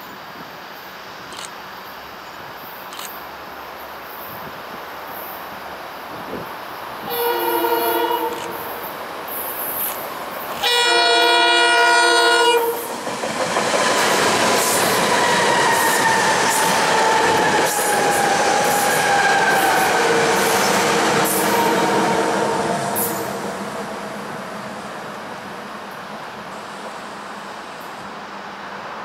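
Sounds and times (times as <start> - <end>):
wheels rushing on rail: 3.2 - 29.0
train horn blasts: 7.0 - 8.8, 10.6 - 12.9, 21.2 - 23.3.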